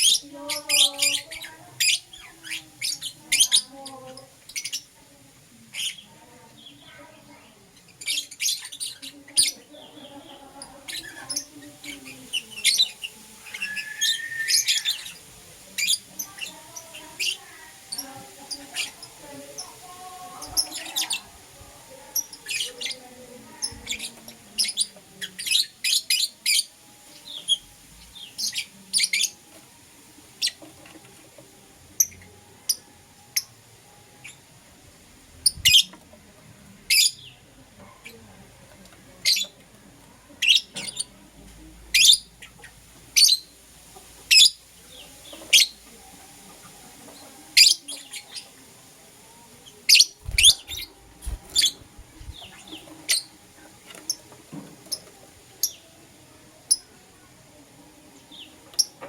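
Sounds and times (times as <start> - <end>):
lovebirds chirping: 0.0 - 5.0, 5.6 - 29.5, 44.2 - 56.0.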